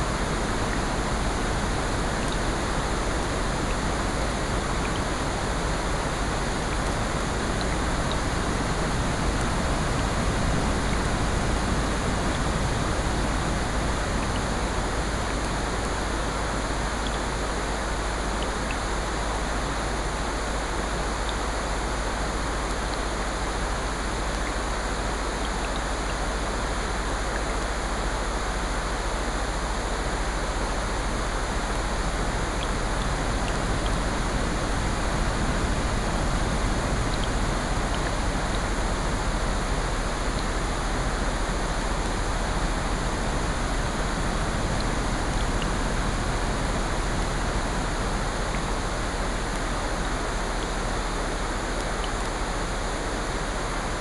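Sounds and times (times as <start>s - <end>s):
steady rain: 0.0s - 54.0s
ocean surf: 30.9s - 54.0s
faint ticks: 37.1s - 38.7s, 51.7s - 52.4s.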